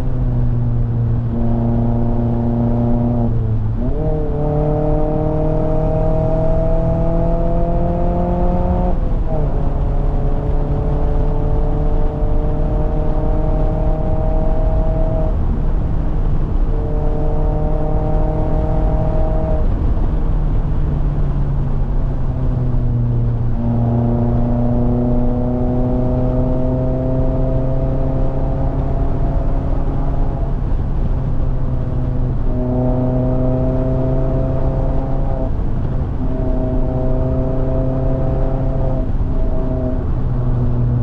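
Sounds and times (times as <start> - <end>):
car engine pulling uphill: 0.0 - 41.0.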